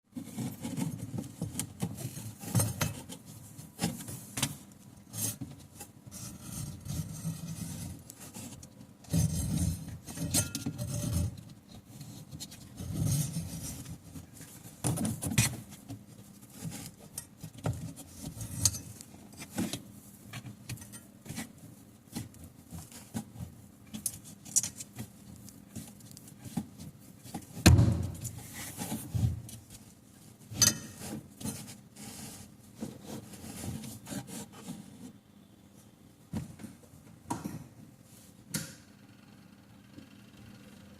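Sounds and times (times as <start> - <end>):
metal tools clinking and rattling: 10.2 - 10.8
dull thumps: 27.6 - 28.4.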